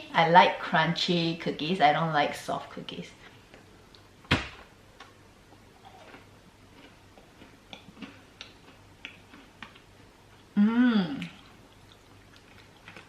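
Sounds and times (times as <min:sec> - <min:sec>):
cookie crunching while chewing: 0:05.8 - 0:10.5, 0:11.2 - 0:13.0.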